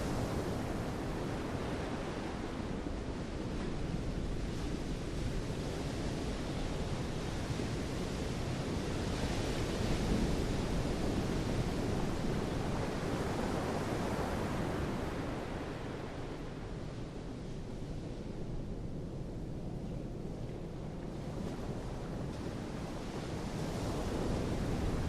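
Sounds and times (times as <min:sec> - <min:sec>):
wind: 0:00.0 - 0:25.0.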